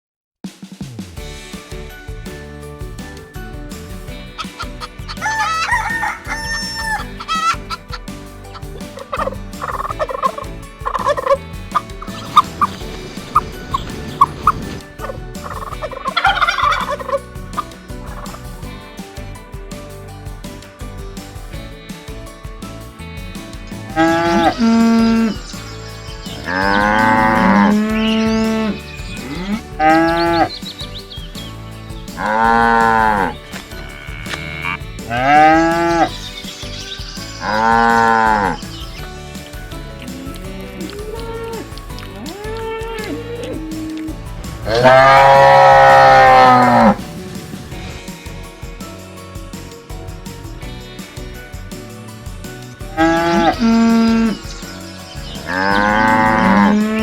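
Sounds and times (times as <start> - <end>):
rooster crowing: 5.2 - 7.1
chickens clucking: 8.9 - 18.4
cattle mooing: 32.2 - 36.1, 44.7 - 47.0, 55.5 - 57.0.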